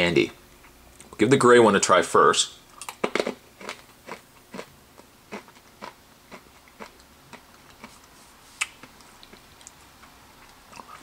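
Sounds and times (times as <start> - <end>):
candy crunching while chewed: 2.8 - 11.0.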